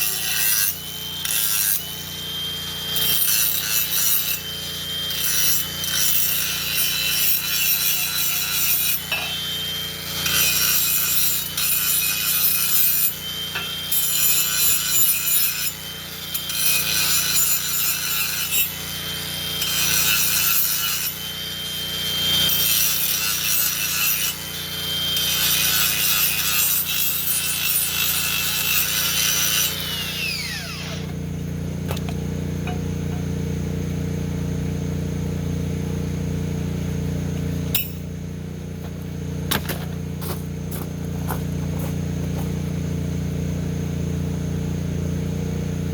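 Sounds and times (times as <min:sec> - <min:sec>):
angle grinder grinding metal pipe: 0:00.0 - 0:45.9
grinder spinning down whine: 0:00.0 - 0:45.9.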